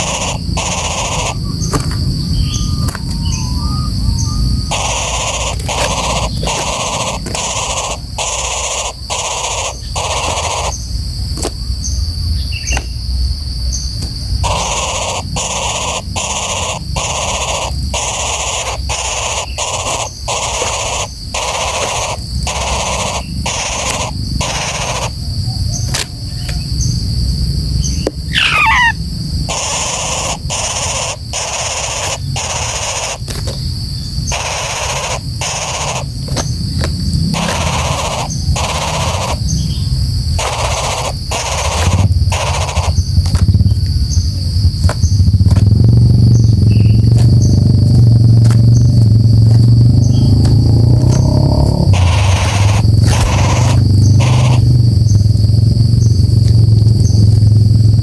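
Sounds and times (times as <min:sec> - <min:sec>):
woodpecker calling: 0:00.0 - 0:58.0
low rumble of wind: 0:01.2 - 0:08.3, 0:10.7 - 0:14.5, 0:25.2 - 0:29.6, 0:36.1 - 0:58.0.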